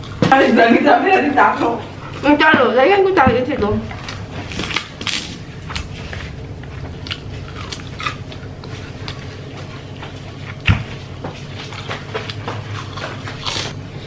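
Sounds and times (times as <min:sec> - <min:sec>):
low steady hum: 0:00.0 - 0:14.0
chewing crunchy food: 0:03.9 - 0:14.0.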